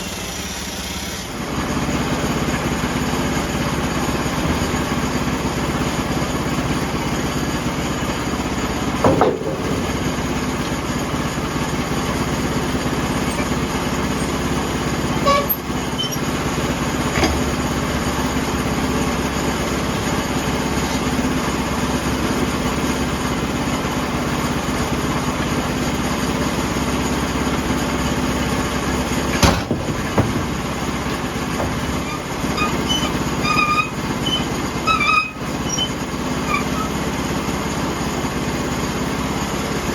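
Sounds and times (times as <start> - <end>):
sawmill blade cutting log: 0.0 - 38.8
sharp knocks: 9.0 - 10.9, 29.4 - 30.8, 31.5 - 32.1.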